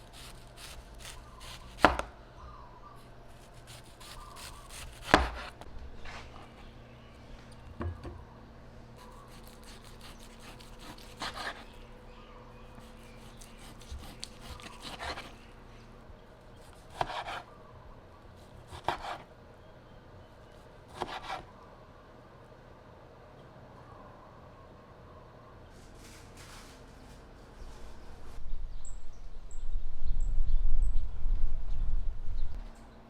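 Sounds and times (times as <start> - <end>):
knife cutting on wooden board: 0.0 - 2.1, 3.3 - 5.6, 9.0 - 11.8, 12.8 - 15.4, 16.6 - 17.5, 18.6 - 19.3, 20.9 - 21.5.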